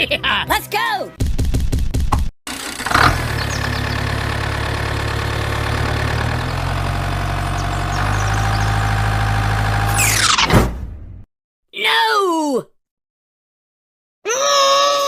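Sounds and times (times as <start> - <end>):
engine idling: 2.5 - 10.0.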